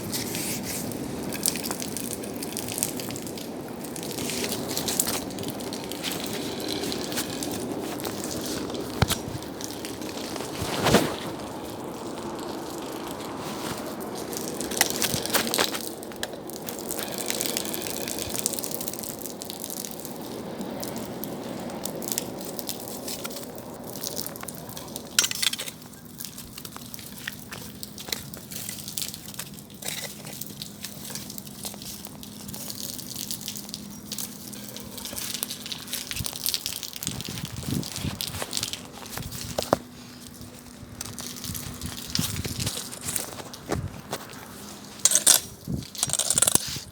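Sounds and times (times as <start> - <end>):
flames rushing: 0.0 - 27.8
wood crackling and popping: 0.0 - 46.9.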